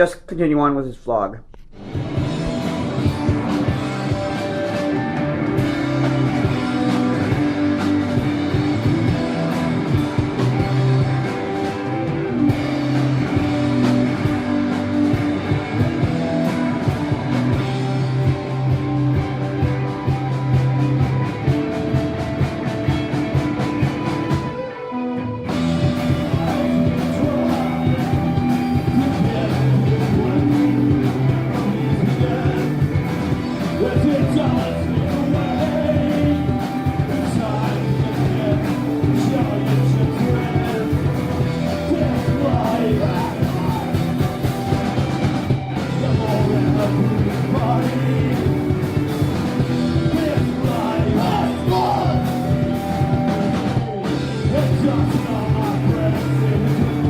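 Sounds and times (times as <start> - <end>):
drum kit: 0.0 - 24.7, 25.5 - 57.0
electric guitar: 1.5 - 57.0
person singing: 25.5 - 45.0, 45.7 - 57.0.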